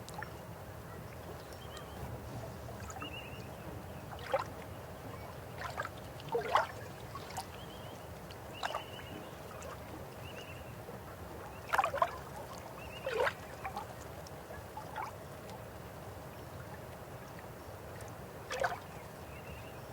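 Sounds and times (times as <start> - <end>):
water gurgles and plops: 5.5 - 7.7, 11.6 - 14.0, 18.0 - 18.9.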